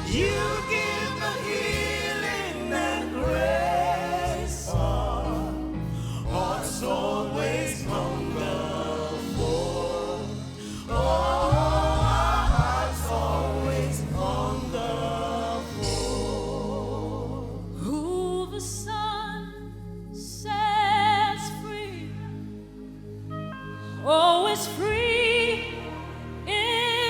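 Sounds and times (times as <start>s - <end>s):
band accompaniment: 0.0s - 16.9s
gospel singers: 0.0s - 27.0s.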